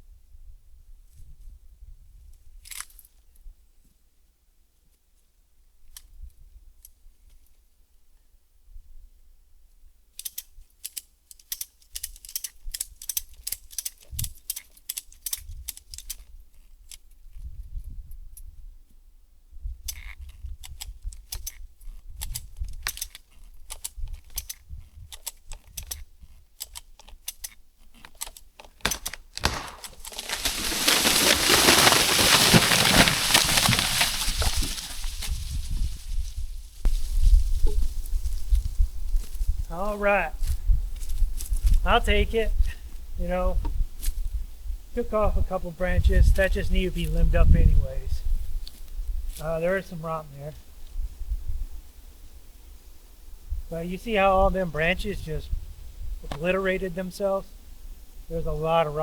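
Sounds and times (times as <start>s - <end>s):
tree falling with crash: 28.8s - 37.6s.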